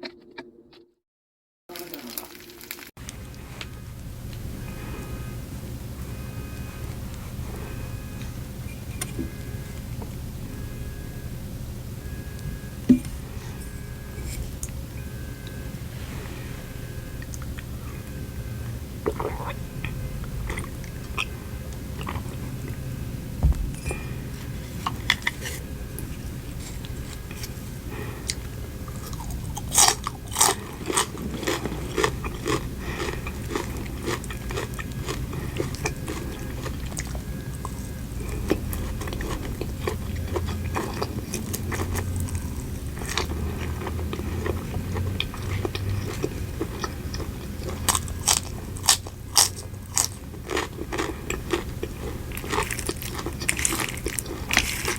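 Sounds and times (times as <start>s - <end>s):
chewing: 1.7s - 11.0s, 12.3s - 54.9s
steady low hum: 1.8s - 54.9s
crisp crunching bites: 24.8s - 54.9s.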